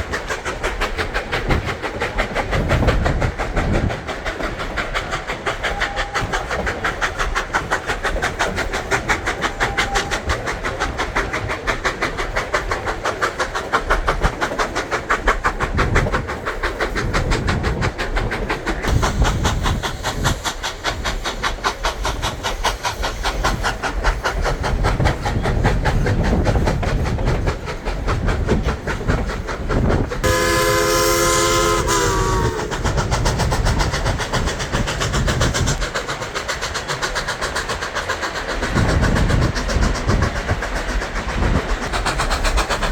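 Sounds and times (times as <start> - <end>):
rail noise: 0.0 - 42.9
steam train running: 0.0 - 42.9
steam whistle chord: 30.2 - 32.9.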